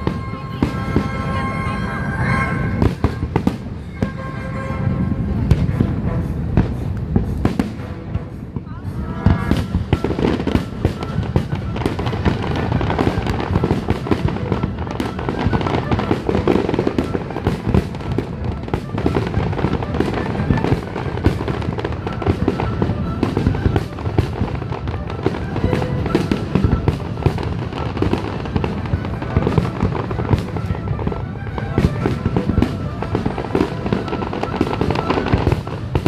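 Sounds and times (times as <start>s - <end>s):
fireworks booming and cracking: 0.0s - 36.0s.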